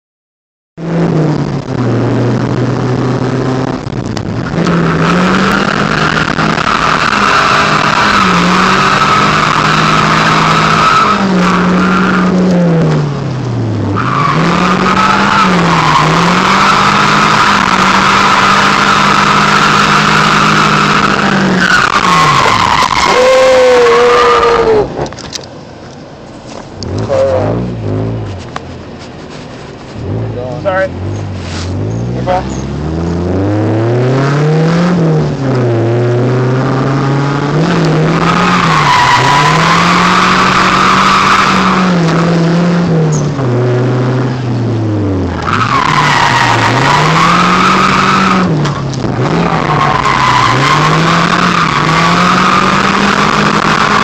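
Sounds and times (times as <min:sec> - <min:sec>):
car engine at high revs: 0:00.8 - 0:54.0
tyres squealing: 0:14.0 - 0:24.9, 0:45.4 - 0:54.0.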